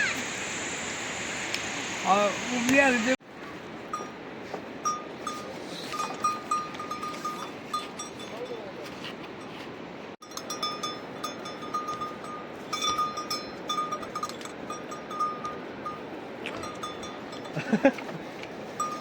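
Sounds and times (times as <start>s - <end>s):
loud call: 0.0s - 3.1s
steady background hiss: 0.0s - 3.2s
livestock bells jingling: 4.9s - 8.7s, 10.2s - 16.0s, 16.6s - 17.9s.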